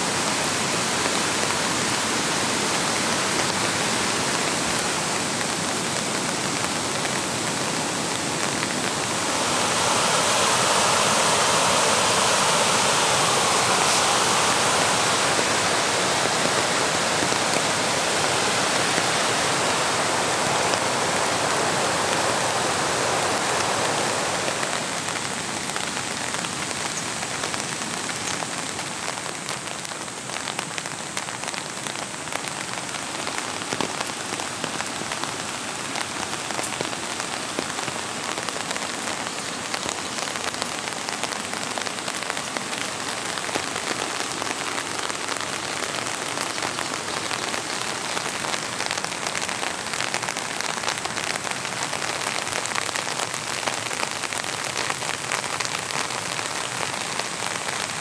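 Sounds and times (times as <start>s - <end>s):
rocky river rushing: 0.0s - 26.2s
steady rain: 0.0s - 58.0s.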